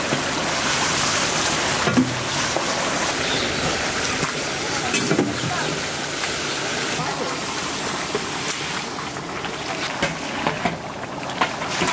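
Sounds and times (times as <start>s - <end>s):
food sizzling in a pan: 0.0s - 9.0s.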